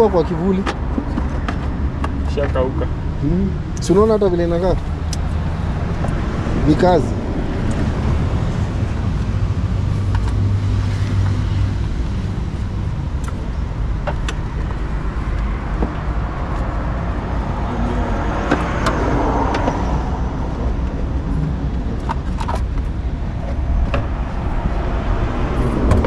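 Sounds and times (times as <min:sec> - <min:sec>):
vehicle engine humming: 0:00.0 - 0:26.0
vehicle passing: 0:14.4 - 0:26.0.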